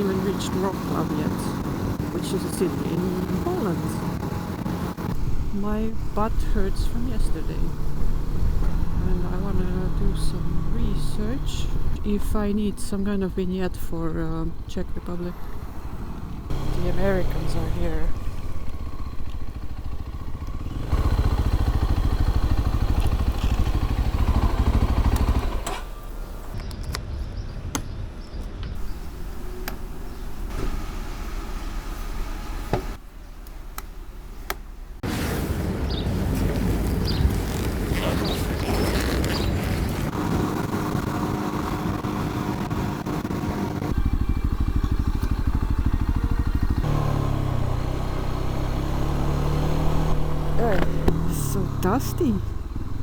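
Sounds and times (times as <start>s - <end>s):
motorcycle engine revving: 0.0s - 12.2s, 14.5s - 26.6s, 35.9s - 53.0s
road and wind noise: 0.0s - 53.0s.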